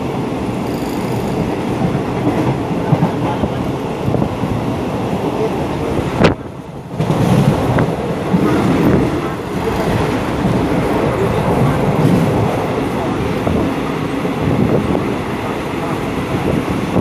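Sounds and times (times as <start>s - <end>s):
moving train rumble and rattle: 0.0s - 17.0s.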